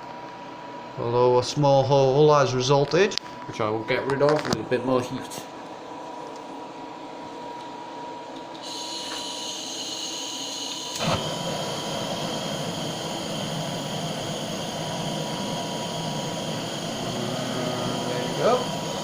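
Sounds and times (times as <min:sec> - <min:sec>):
blowtorch flame hissing: 0:08.6 - 0:19.0
blowtorch click: 0:10.8 - 0:13.7.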